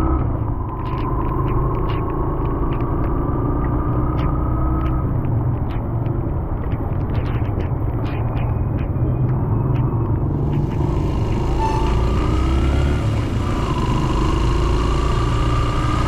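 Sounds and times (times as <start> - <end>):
vehicle engine and road rumble: 0.0 - 16.0
raindrops ticking: 0.3 - 11.3
faint whine: 10.2 - 16.0.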